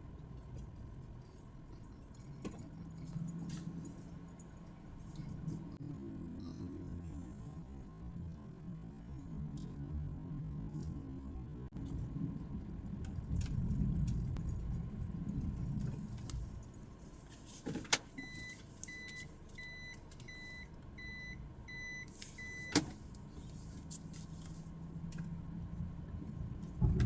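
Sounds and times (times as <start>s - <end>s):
car engine running low: 0.0s - 17.6s, 22.4s - 27.0s
electronic warning beeps: 18.2s - 22.8s.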